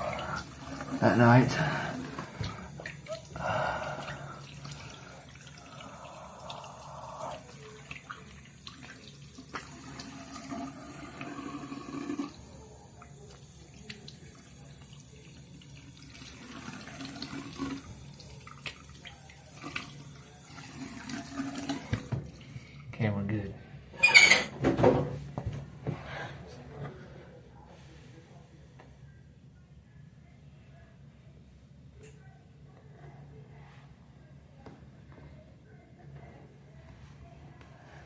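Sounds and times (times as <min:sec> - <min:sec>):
sink tap running: 0:00.0 - 0:22.4
water splashing while washing face: 0:00.0 - 0:22.4.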